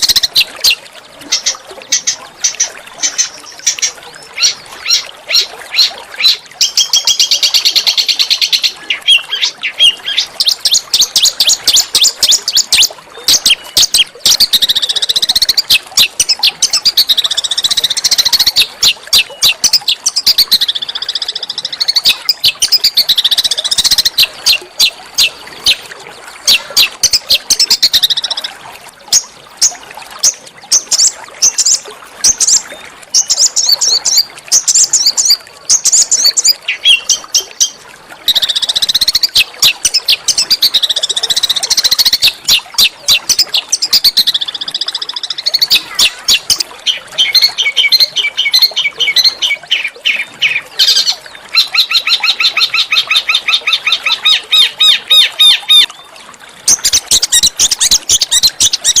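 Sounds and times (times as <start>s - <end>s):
songbird chirping and trilling: 0.0s - 59.0s.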